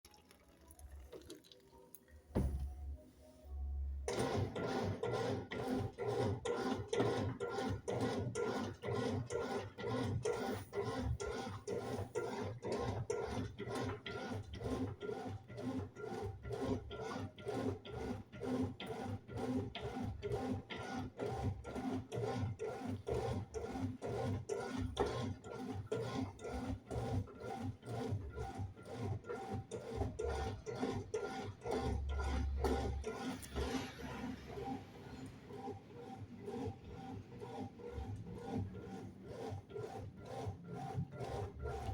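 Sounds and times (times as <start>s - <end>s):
single knock: 2.3s - 2.8s
washing machine churning: 2.3s - 2.9s, 4.1s - 41.9s.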